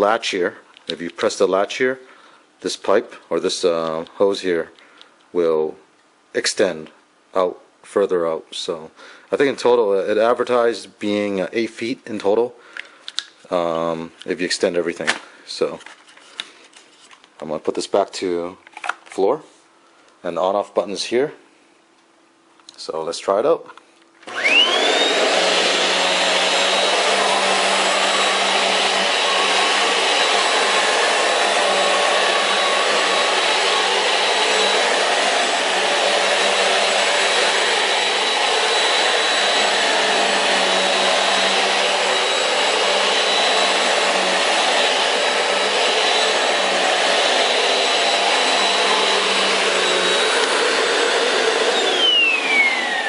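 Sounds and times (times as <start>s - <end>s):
vacuum cleaner motor whine: 24.2s - 53.0s.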